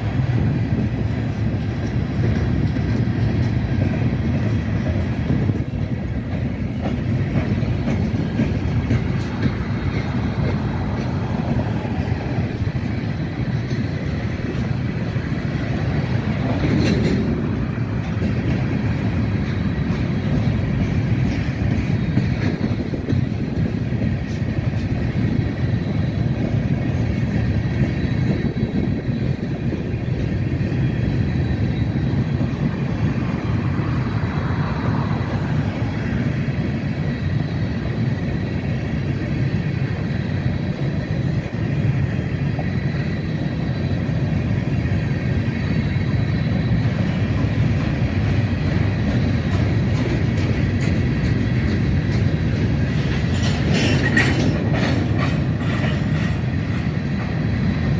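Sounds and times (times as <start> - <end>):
freight train wheels rumbling: 0.0 - 57.9.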